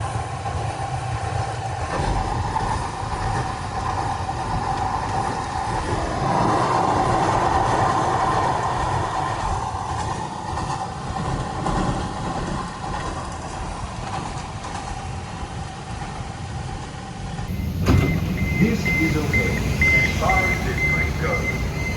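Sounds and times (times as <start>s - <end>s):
train rumbling on rails: 17.3s - 21.9s
constant hum: 17.5s - 21.9s.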